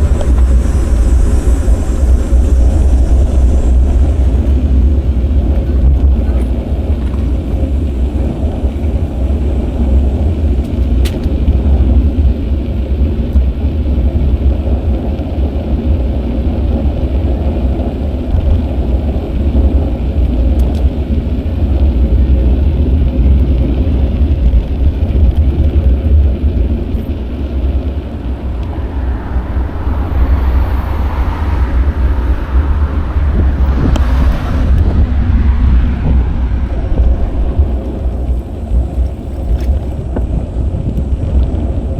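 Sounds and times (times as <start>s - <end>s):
tyre and road noise: 0.0s - 41.9s
wind rumbling on microphone: 0.0s - 41.9s.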